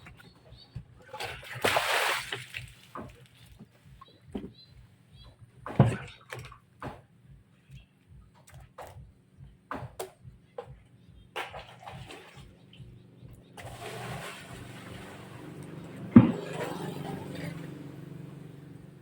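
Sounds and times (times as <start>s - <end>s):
washing machine humming: 11.8s - 19.0s
water rushing through machine: 13.6s - 18.7s.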